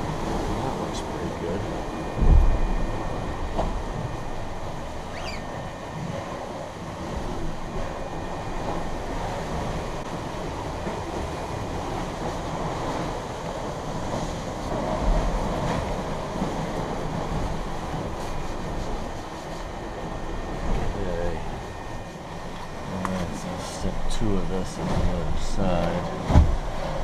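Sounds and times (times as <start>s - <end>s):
water rushing along hull: 0.0s - 27.0s
wind: 0.0s - 27.0s
low thump: 2.2s - 3.8s, 26.3s - 26.6s.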